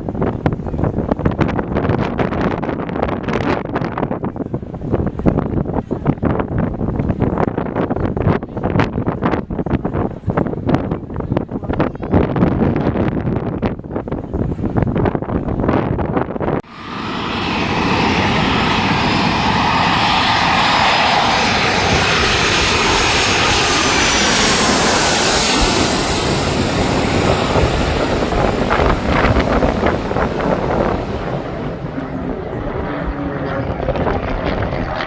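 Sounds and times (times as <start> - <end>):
propeller aircraft engine: 16.6 - 35.0.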